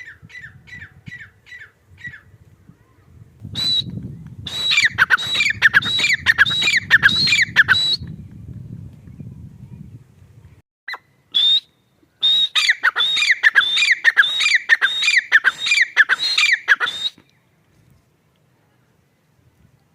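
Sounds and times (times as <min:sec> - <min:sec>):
francolin calling: 0:04.5 - 0:08.0, 0:10.9 - 0:17.2.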